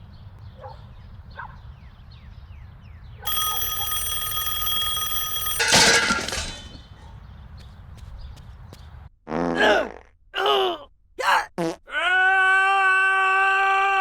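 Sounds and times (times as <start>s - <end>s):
alarm clock bell ringing: 3.3s - 6.8s.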